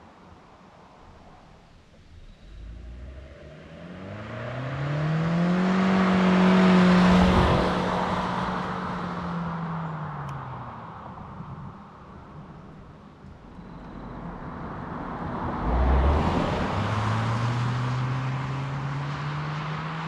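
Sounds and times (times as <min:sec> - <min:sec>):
car engine accelerating hard: 0:02.2 - 0:10.4, 0:12.5 - 0:20.0.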